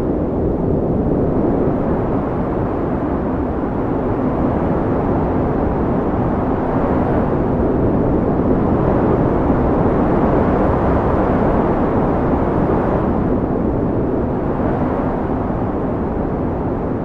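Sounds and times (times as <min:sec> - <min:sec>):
wind blowing: 0:00.0 - 0:17.0.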